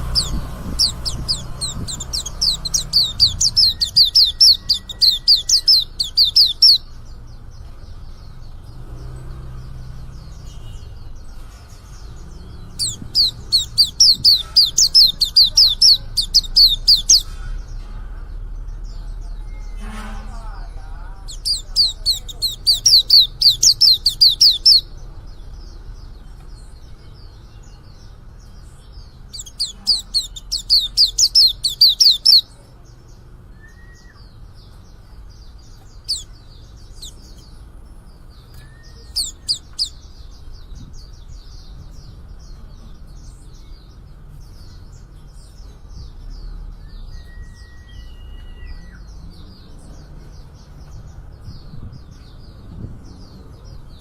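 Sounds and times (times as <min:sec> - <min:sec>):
bird chirping rapidly: 0:00.0 - 0:17.4, 0:21.0 - 0:32.6, 0:33.5 - 0:42.6
soft bird twittering: 0:00.0 - 0:54.0.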